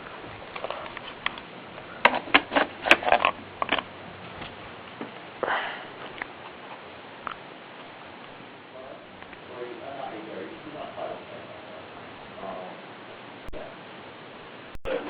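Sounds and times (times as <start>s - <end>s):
breathy sniff: 5.4s - 6.1s.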